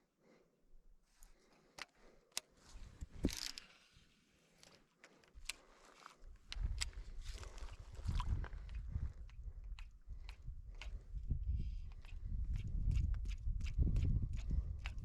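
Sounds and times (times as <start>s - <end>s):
fishing tackle clicks: 3.2s - 3.7s
wind rumbling on microphone: 6.5s - 15.0s.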